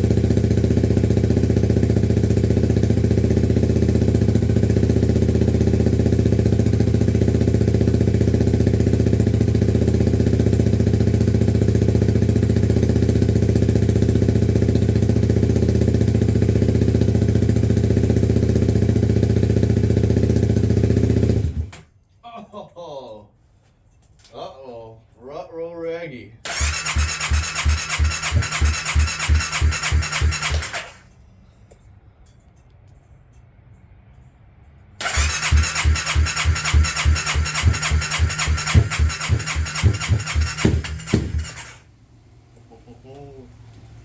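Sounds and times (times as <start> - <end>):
motorcycle engine running: 0.0 - 21.7, 26.5 - 31.1, 35.0 - 41.9.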